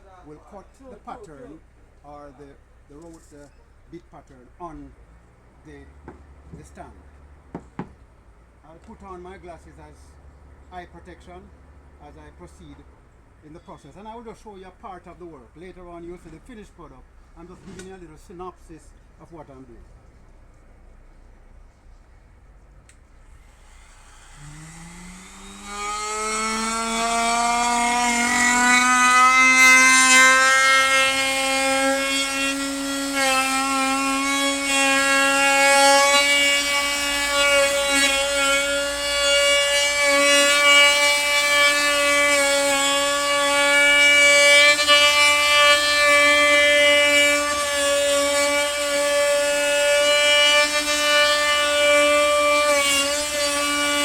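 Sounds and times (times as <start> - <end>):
wood router whining: 23.3 - 54.0.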